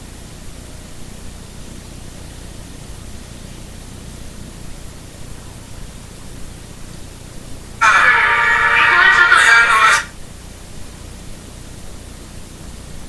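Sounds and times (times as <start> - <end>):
static hiss: 7.8 - 10.1.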